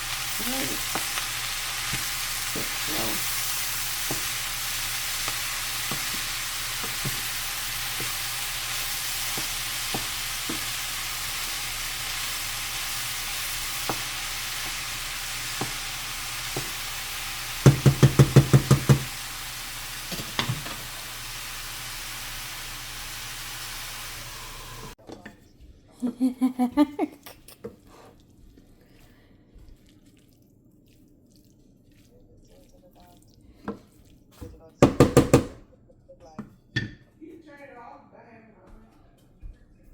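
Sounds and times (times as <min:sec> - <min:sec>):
stirring knocks: 0:00.0 - 0:21.0
corn sizzling in frying pan: 0:00.0 - 0:25.0
loud taps against pan: 0:17.6 - 0:19.1.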